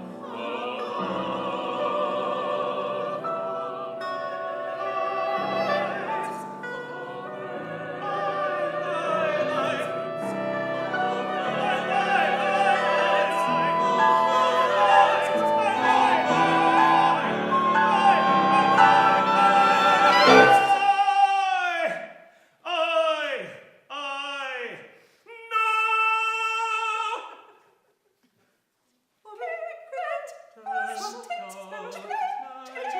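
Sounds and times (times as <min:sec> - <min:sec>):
chamber ensemble playing: 0:00.0 - 0:20.8
vocal quartet singing held notes: 0:00.0 - 0:21.1, 0:30.6 - 0:32.9.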